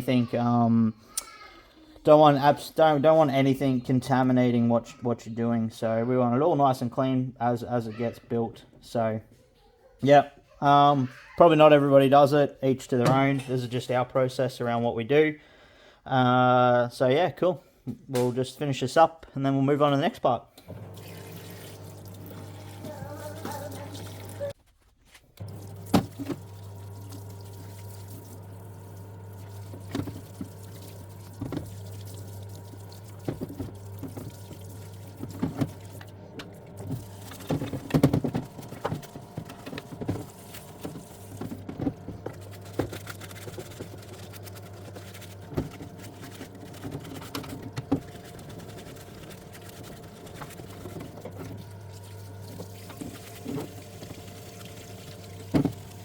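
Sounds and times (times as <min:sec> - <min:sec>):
parts washer humming: 0:20.6 - 0:24.6, 0:25.3 - 0:56.0
cleaning fluid splashing: 0:20.7 - 0:24.6, 0:25.4 - 0:56.0.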